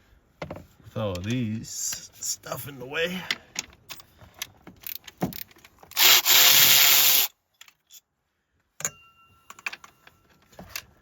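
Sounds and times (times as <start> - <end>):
electric ratchet motor whine: 6.0 - 7.3.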